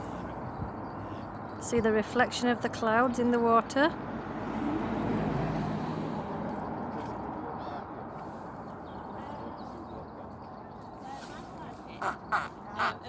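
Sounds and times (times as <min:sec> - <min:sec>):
road vehicle passing: 0:00.0 - 0:10.4.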